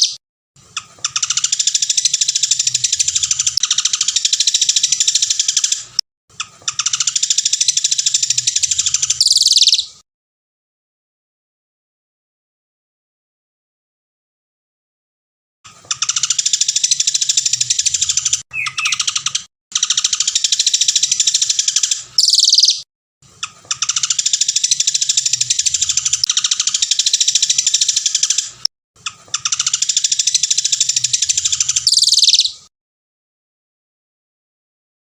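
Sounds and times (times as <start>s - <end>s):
songbird trilling: 9.2s - 9.9s, 18.5s - 22.8s, 29.4s - 32.6s.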